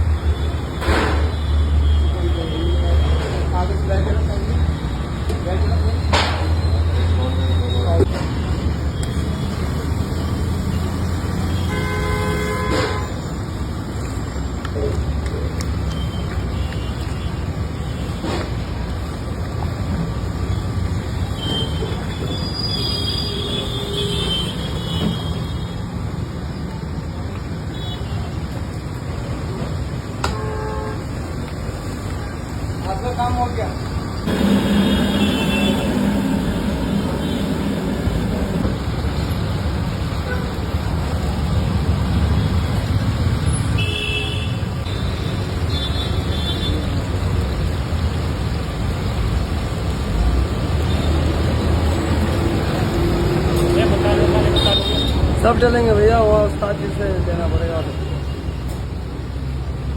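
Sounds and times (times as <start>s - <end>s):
street traffic rumble: 0.0s - 59.9s
vehicle horns honking: 11.5s - 13.2s, 30.2s - 31.0s, 34.3s - 38.6s.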